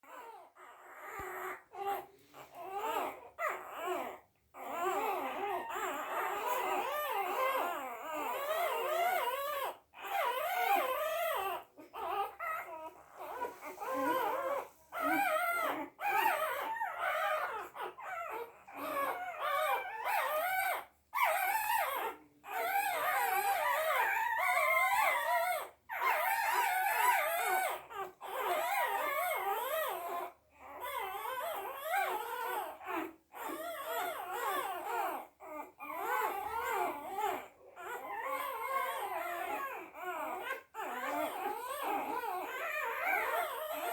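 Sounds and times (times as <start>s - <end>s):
dog whining and whimpering: 0.0s - 43.9s.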